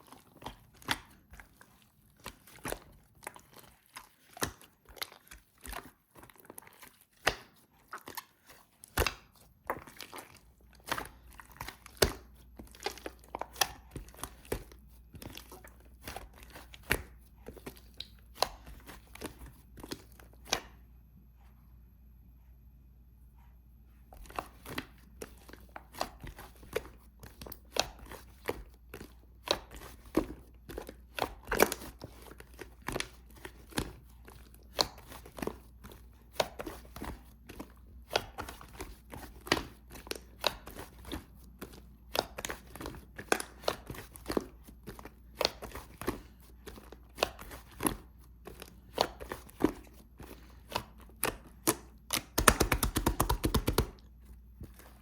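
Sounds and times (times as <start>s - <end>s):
slime crackling pops: 51.6s - 54.0s.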